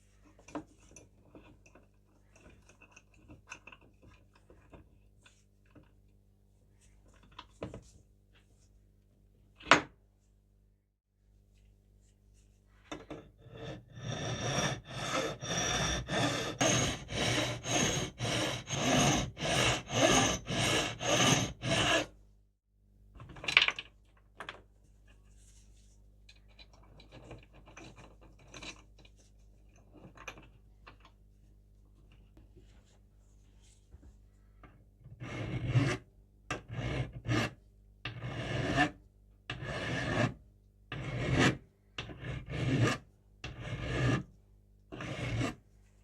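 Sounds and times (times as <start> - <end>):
light irregular scraping: 24.8 - 30.6.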